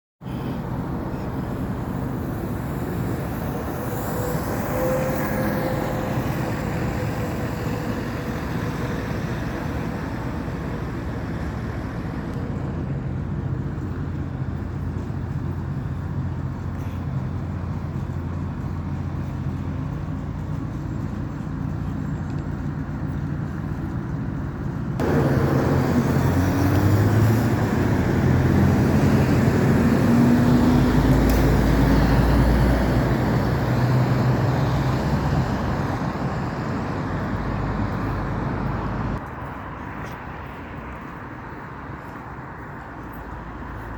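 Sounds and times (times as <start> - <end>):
trucks and cars passing: 0.2 - 43.9
vehicle accelerating away: 25.0 - 39.2.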